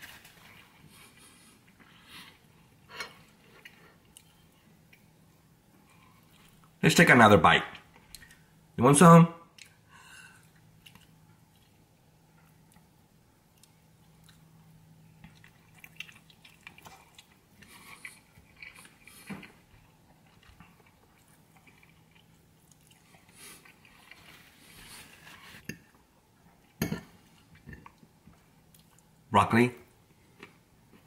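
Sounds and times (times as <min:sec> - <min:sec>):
person chewing: 0:03.2 - 0:05.1, 0:05.8 - 0:06.8, 0:10.4 - 0:12.9, 0:13.5 - 0:26.0.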